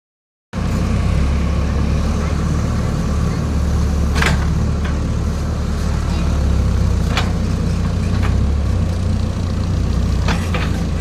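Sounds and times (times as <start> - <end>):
diesel engine running: 0.6 - 11.0.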